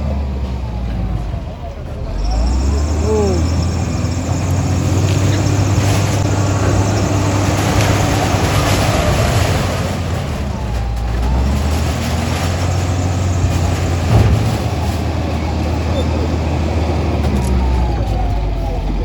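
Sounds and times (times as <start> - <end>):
heavy engine running: 0.0 - 19.0.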